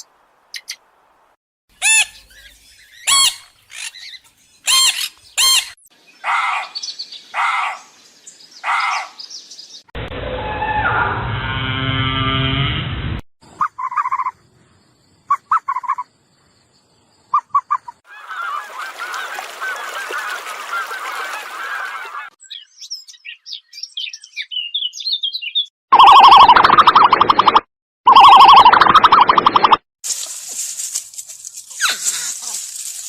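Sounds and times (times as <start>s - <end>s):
small birds chirping: 0.0s - 0.8s, 1.8s - 9.9s, 22.4s - 25.7s
geese honking: 18.1s - 22.4s.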